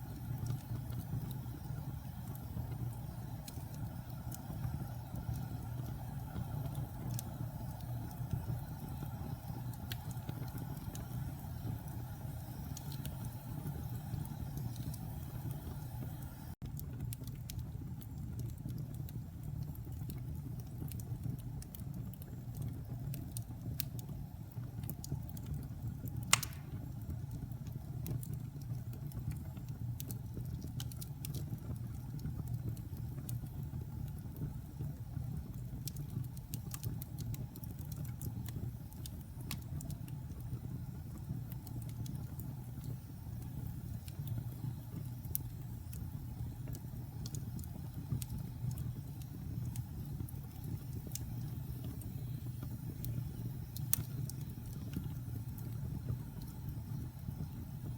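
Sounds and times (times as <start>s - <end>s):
fire crackling and popping: 0.0s - 57.9s
sharp pop: 26.3s - 26.9s.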